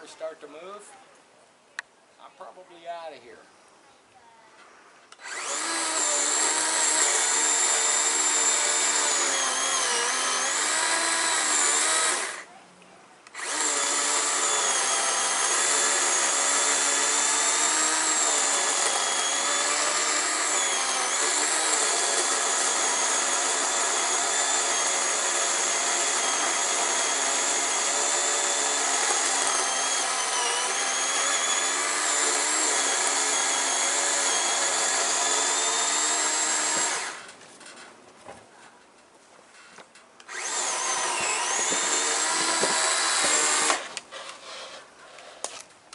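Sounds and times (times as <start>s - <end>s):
electric saw cutting wood: 5.1s - 12.5s, 13.3s - 37.4s, 40.2s - 45.5s.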